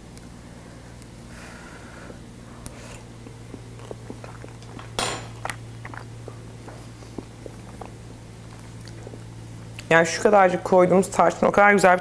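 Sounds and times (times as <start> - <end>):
person chewing pastry: 1.9 - 9.9.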